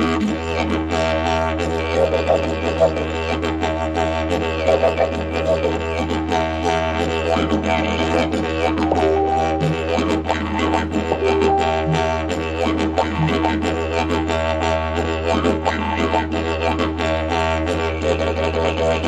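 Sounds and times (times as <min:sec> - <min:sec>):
didgeridoo drone: 0:02.9 - 0:16.7.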